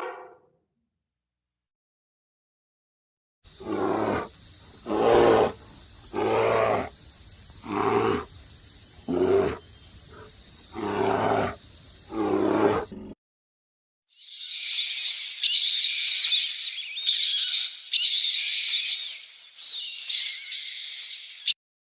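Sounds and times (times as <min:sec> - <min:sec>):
large animal roaring: 0:10.7 - 0:13.2.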